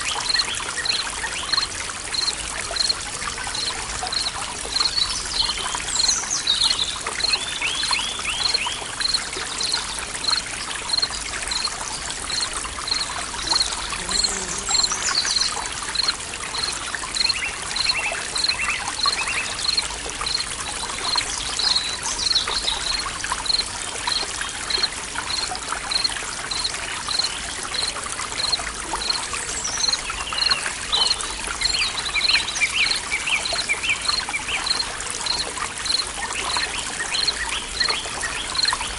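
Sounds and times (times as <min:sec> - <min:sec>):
stream trickling and splashing: 0:00.0 - 0:38.9
birds singing: 0:12.3 - 0:25.4.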